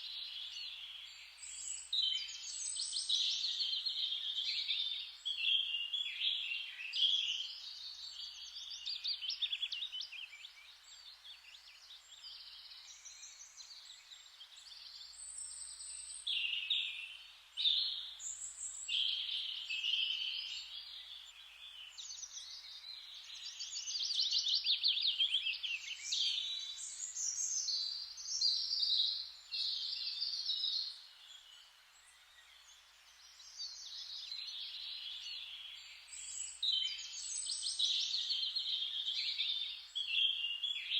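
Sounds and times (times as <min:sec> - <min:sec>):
soft steady hiss: 0:00.0 - 0:40.9
songbirds singing and chirping: 0:00.0 - 0:40.9.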